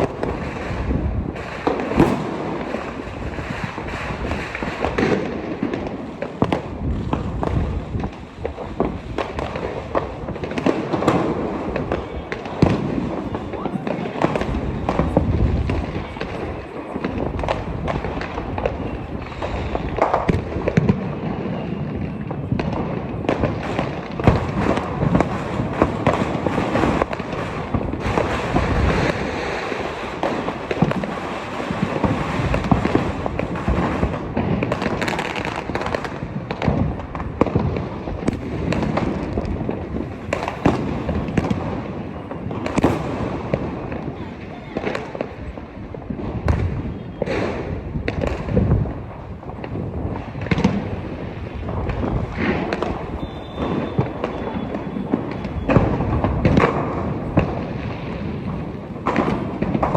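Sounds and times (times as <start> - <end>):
fireworks and firecrackers crackling: 0.0 - 59.9
loud fireworks cracks: 0.0 - 59.9.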